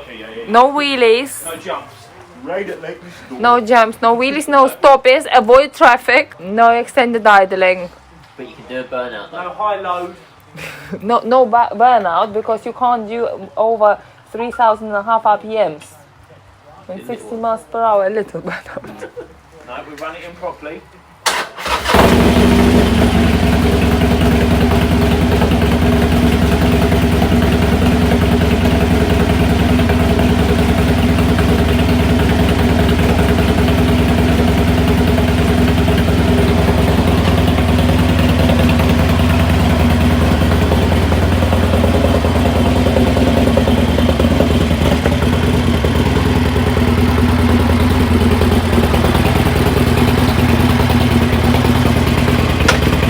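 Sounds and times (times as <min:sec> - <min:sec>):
motorcycle engine idling: 0:21.3 - 0:53.0.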